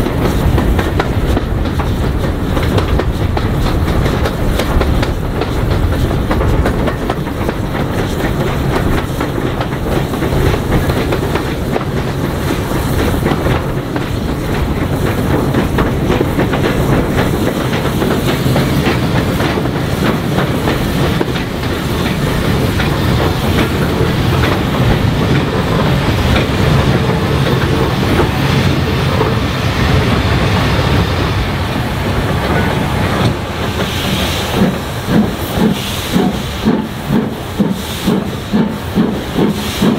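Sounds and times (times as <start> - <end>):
wheels clicking over rail joints: 0.0 - 29.4
steam train rumbling: 0.0 - 39.9.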